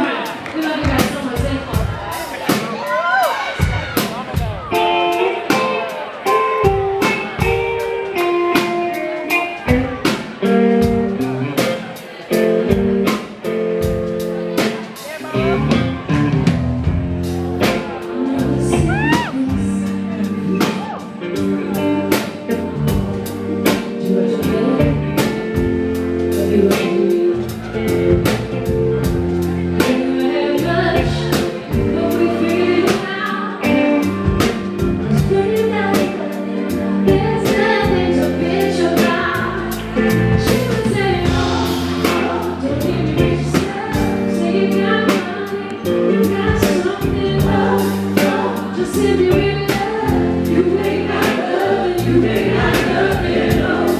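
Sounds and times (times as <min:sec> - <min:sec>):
soul band playing: 0:00.0 - 0:53.9
woman singing lead: 0:00.0 - 0:53.9
backing vocals: 0:17.2 - 0:28.4, 0:29.5 - 0:53.9.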